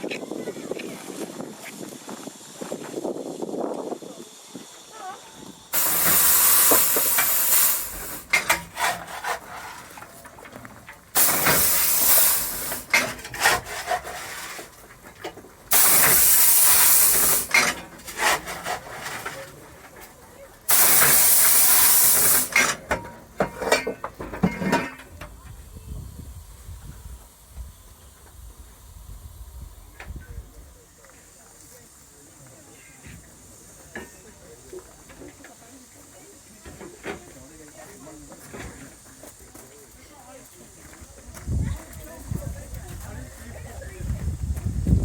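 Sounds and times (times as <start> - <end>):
steam locomotive hissing steam: 0.1 - 45.0
metallic clanks and knocks: 5.8 - 19.5, 20.7 - 25.3.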